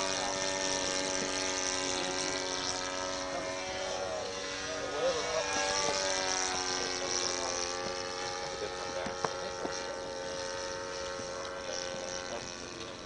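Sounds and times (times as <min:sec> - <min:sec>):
model airplane engine droning: 0:00.0 - 0:13.0.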